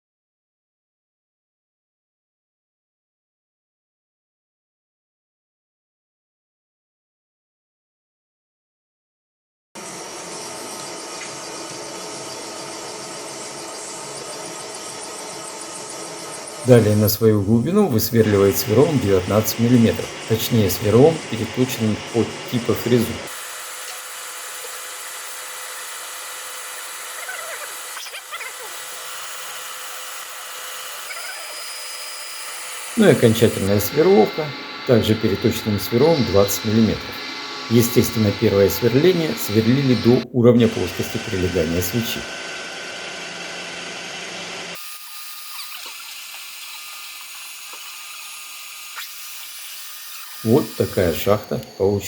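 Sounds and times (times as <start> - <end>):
machine spindle running: 9.8 - 52.0.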